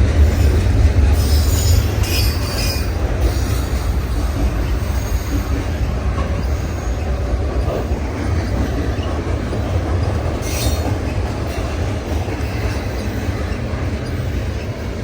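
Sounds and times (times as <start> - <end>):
freight train wheels rumbling on rails: 0.0 - 15.0
high wheel squeal: 10.4 - 11.7.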